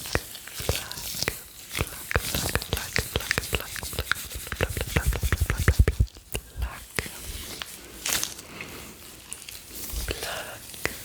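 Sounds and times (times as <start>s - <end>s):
wet mouth pops: 0.0s - 7.1s, 10.8s - 11.0s
tongue clicks: 0.0s - 7.2s, 10.8s - 11.0s
rubber gloves handled: 0.0s - 11.0s.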